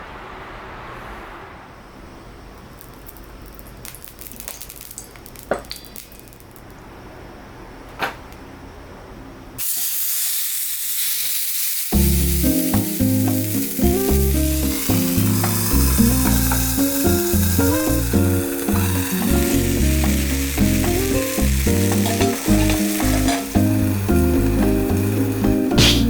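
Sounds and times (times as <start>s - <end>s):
steady sizzle: 2.6s - 6.8s, 9.6s - 26.0s
background music: 12.0s - 26.0s.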